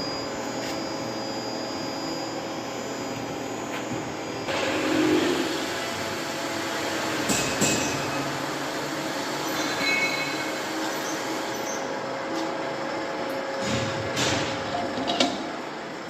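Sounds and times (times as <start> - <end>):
pipe bender running: 0.0 - 15.6
high metallic squeals: 9.4 - 11.9.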